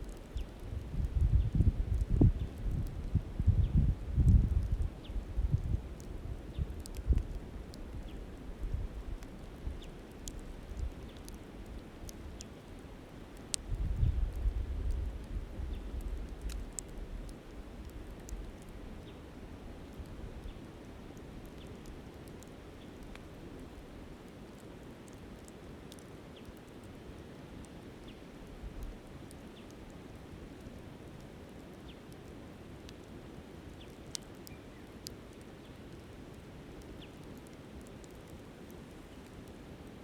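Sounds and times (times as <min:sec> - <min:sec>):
campfire crackling and popping: 0:00.0 - 0:40.0
wind buffeting microphone: 0:00.6 - 0:07.3, 0:13.7 - 0:16.6.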